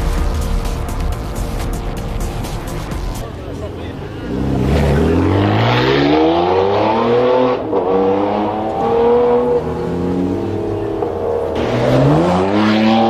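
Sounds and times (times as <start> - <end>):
car engine accelerating hard: 2.8 - 13.0.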